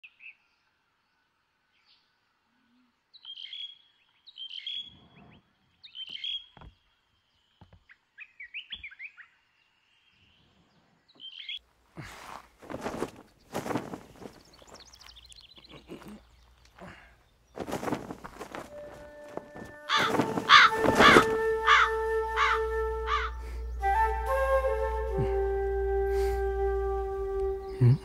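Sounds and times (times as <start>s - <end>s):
songbirds chirping: 0.0s - 28.0s
loud rustling: 12.0s - 15.0s, 17.6s - 23.2s.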